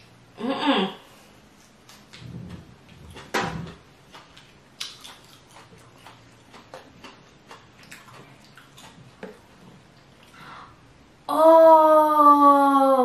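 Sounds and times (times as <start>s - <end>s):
wet chewing and mouth clicks: 1.8s - 10.4s.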